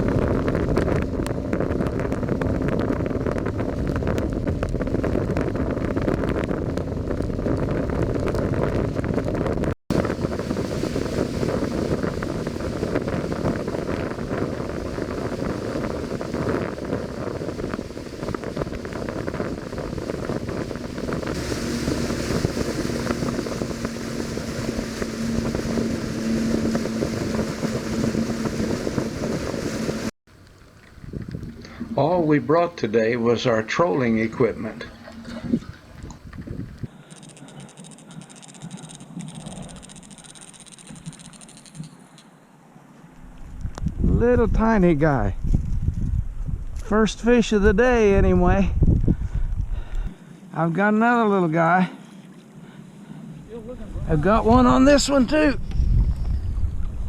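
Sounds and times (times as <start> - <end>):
wind buffeting microphone: 0.0 - 37.0, 43.2 - 50.2, 52.6 - 57.0
outboard motor running: 0.0 - 41.8
water rushing: 9.9 - 36.4.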